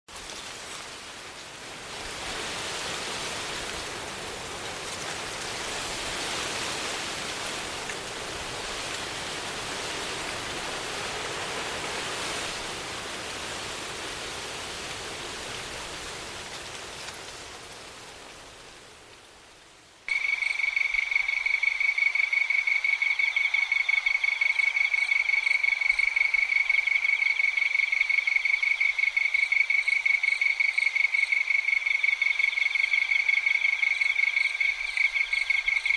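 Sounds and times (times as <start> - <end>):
insects trilling: 20.1 - 35.9.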